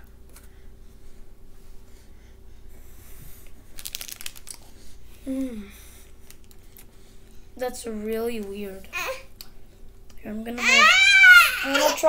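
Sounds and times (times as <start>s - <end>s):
child chewing: 3.4s - 7.4s
packaging crinkling: 3.7s - 4.7s.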